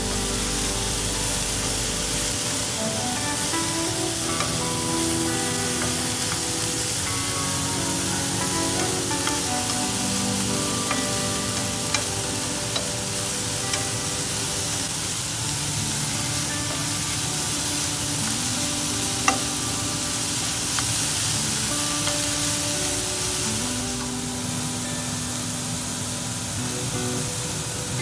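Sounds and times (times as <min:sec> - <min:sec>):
soft background music: 0:00.0 - 0:28.0
vegetables sizzling in a wok: 0:00.0 - 0:28.0
chopsticks clicking against pan: 0:19.2 - 0:19.5.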